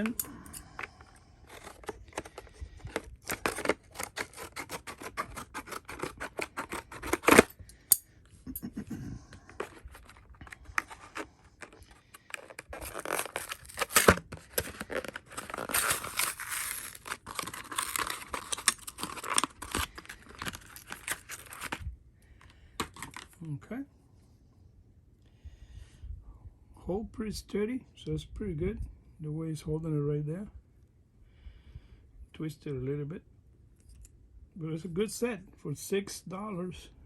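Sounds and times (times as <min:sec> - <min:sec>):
packaging rustling and scraping: 0:00.0 - 0:07.9, 0:09.2 - 0:23.4.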